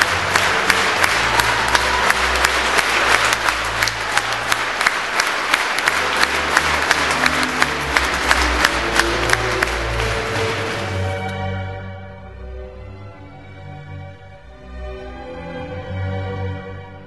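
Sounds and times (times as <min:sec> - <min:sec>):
audience clapping in unison: 0:00.0 - 0:11.6.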